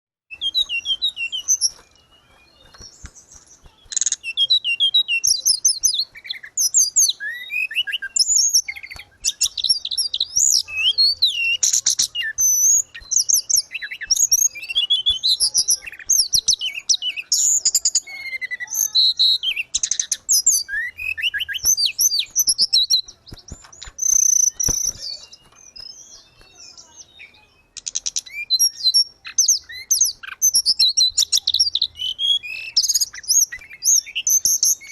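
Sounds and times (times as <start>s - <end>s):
bird singing chirps and trills: 0.3s - 34.9s.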